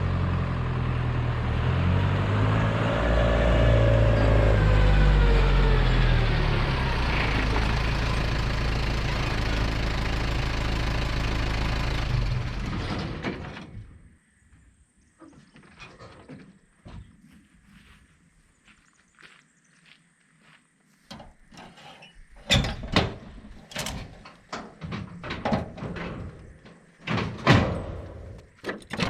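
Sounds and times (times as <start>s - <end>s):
vehicle engine running: 0.0s - 13.2s.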